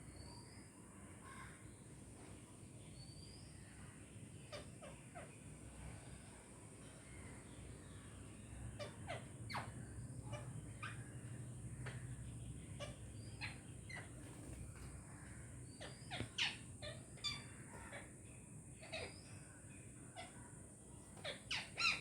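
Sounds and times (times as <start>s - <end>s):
parrots calling: 4.5s - 5.4s, 8.7s - 18.2s, 18.8s - 19.4s, 20.2s - 22.0s.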